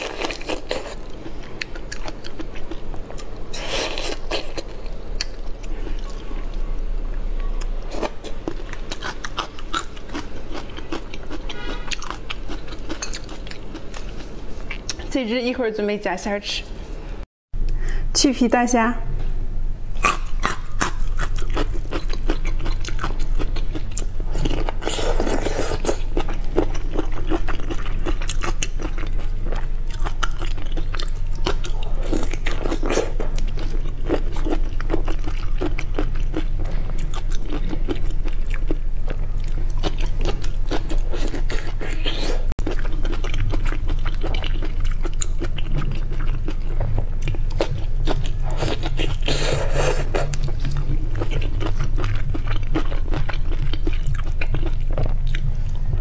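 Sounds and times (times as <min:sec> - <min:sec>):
low hum: 0:00.0 - 0:56.0
chewing wet crunches: 0:20.0 - 0:55.9.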